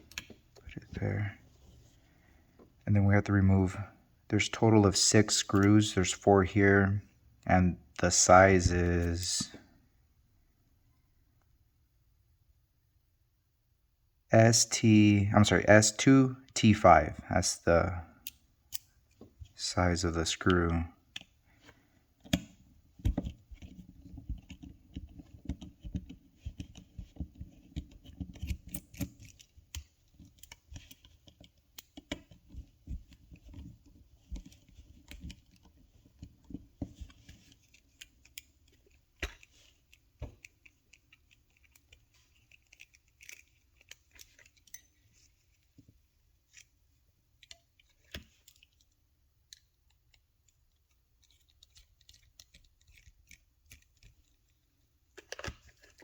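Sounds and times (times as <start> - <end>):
screwdriver turning tiny screws: 37.5 - 45.0.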